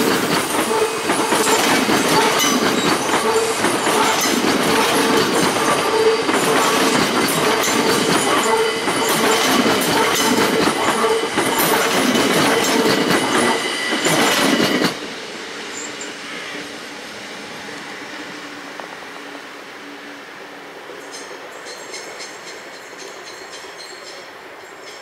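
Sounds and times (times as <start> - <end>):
train wheels clattering over rail joints: 0.0 - 15.1, 21.0 - 25.0
train rumble with low hum: 0.0 - 25.0.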